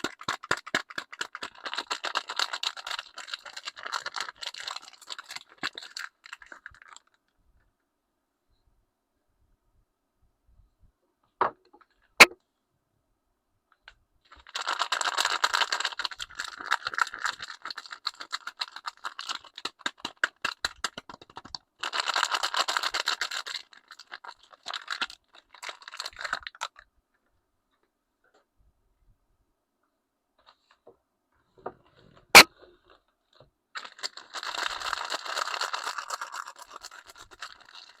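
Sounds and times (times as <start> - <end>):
soap wrapper tearing and crinkling: 0.0 - 7.2, 14.3 - 26.9, 33.7 - 38.0.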